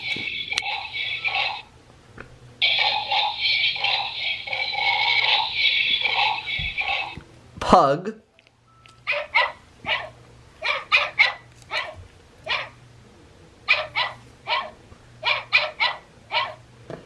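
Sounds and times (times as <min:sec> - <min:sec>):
toy dog barks through speaker: 0:09.1 - 0:12.7, 0:13.7 - 0:16.6.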